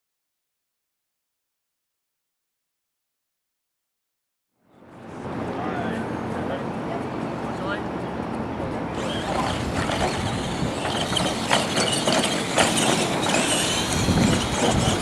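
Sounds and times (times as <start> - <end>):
motor and gear whine: 5.0 - 15.0
chassis knocks and clatters: 9.0 - 15.0.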